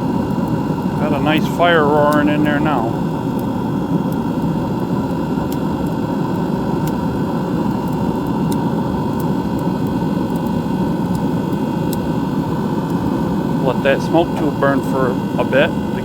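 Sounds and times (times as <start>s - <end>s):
fire roaring in smoker: 0.0s - 16.0s.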